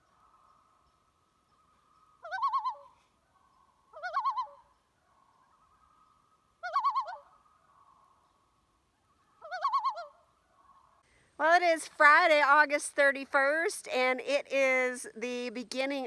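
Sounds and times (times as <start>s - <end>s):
bird wavering calls: 1.5s - 8.2s, 9.0s - 11.0s.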